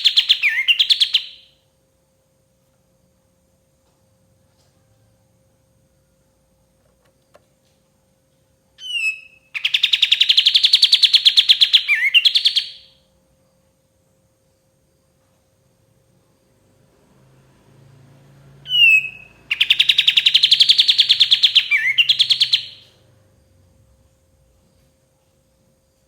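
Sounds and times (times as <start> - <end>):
bulbul singing: 0.0 - 1.6, 8.8 - 13.0, 18.6 - 23.0.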